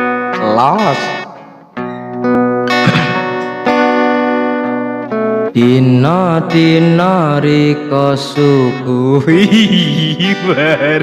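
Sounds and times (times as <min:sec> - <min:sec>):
acoustic guitar plucking: 0:00.0 - 0:11.0
person singing: 0:05.5 - 0:11.0.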